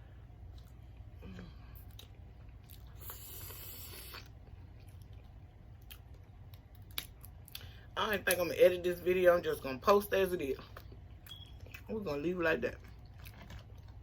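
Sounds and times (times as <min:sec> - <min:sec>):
wet chewing of food: 0:00.4 - 0:07.8, 0:10.6 - 0:11.9, 0:12.6 - 0:14.0.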